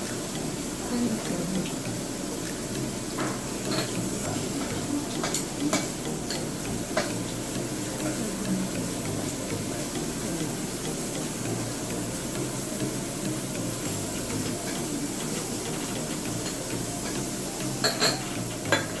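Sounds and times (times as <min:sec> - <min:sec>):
meat sizzling on a grill: 0:00.0 - 0:19.0
tableware clinking: 0:03.2 - 0:07.3, 0:14.2 - 0:19.0.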